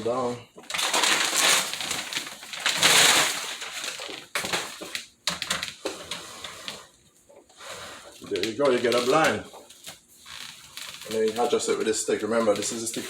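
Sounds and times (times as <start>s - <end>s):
window blind slats clattering: 8.2s - 9.5s.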